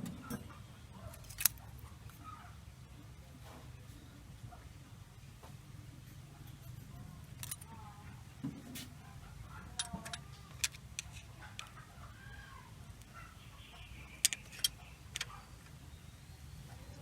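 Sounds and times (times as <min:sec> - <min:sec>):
hand tools clicking on metal: 0:01.1 - 0:01.6, 0:07.3 - 0:07.7, 0:09.7 - 0:11.8, 0:14.2 - 0:15.8
chickens clucking: 0:11.2 - 0:14.1.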